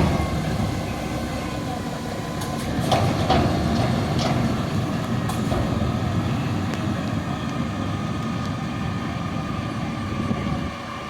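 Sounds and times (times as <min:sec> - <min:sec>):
garbage truck engine running: 0:00.0 - 0:11.0
clanks and knocks: 0:02.4 - 0:04.6.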